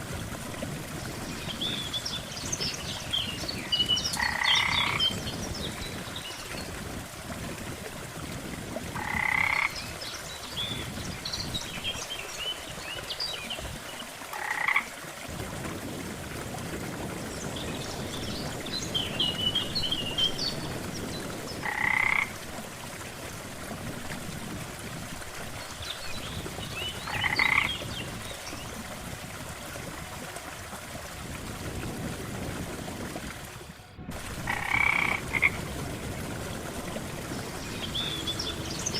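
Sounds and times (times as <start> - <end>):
frogs croaking loudly: 4.2 - 5.0, 9.0 - 9.8, 14.4 - 14.9, 21.6 - 22.4, 27.1 - 27.7, 34.5 - 35.6.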